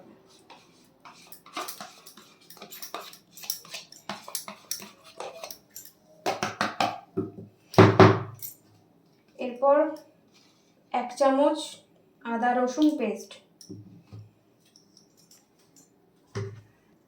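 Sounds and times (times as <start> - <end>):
spoon scraping against bowl: 0.3 - 6.0.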